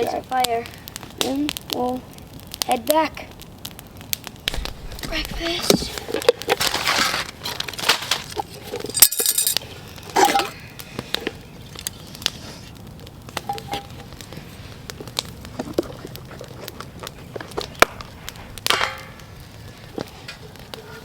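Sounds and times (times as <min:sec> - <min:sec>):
metal pots and utensils clinking: 0:07.1 - 0:10.6.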